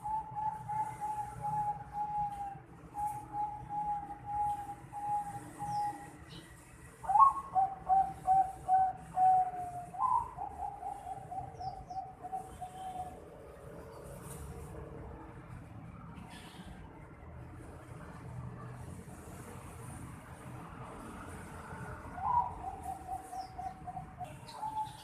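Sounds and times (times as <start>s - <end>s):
dove cooing: 0.0s - 6.2s, 7.0s - 13.4s, 22.1s - 25.0s.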